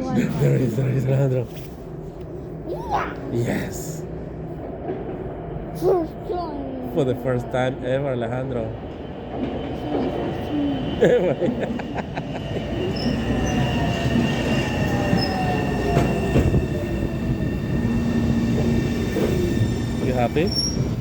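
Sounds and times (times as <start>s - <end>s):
subway train rumble: 0.0s - 21.0s
high-pitched whines: 12.3s - 20.8s.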